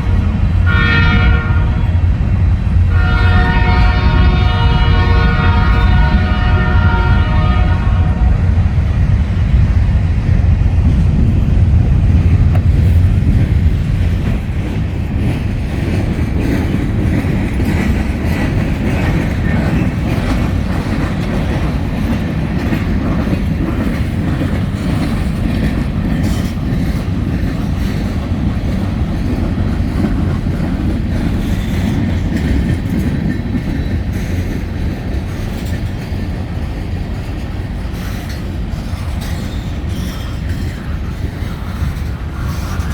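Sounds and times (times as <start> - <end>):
train horn: 0.0 - 2.2, 2.9 - 8.7
diesel locomotives rumbling: 0.0 - 42.9
wheels clicking over rail joints: 10.9 - 42.9.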